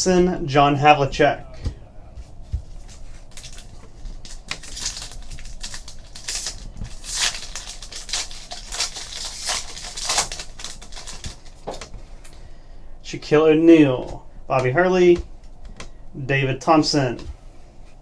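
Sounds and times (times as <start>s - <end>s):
cards rustling and clicking: 1.4s - 12.5s.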